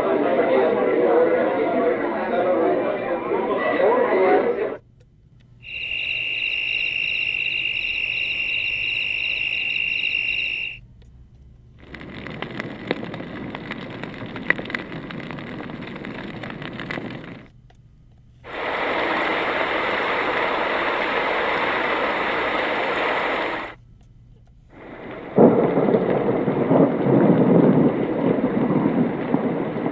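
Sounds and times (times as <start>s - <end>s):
hiss with scattered crackles: 0.0s - 29.9s
steady even hiss: 5.6s - 10.8s, 11.8s - 17.6s, 18.3s - 23.8s, 24.7s - 29.9s
steady high tone with pulsing chirp: 5.6s - 10.8s.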